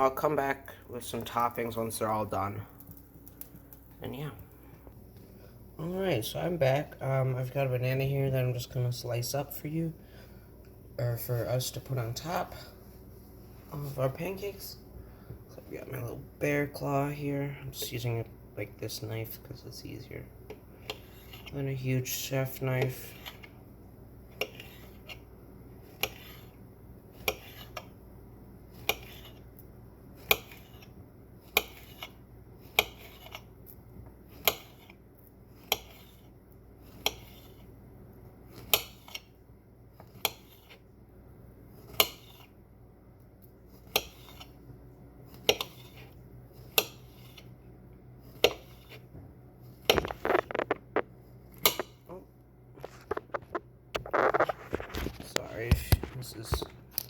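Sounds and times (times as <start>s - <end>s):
knife slicing on cutting board: 25.9s - 26.6s, 27.2s - 27.8s, 35.6s - 36.2s, 36.9s - 37.6s, 43.8s - 44.6s.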